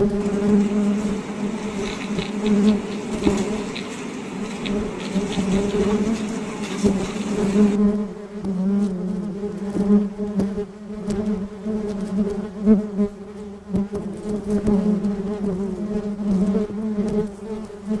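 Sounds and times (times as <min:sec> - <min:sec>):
bees buzzing: 0:00.0 - 0:12.7.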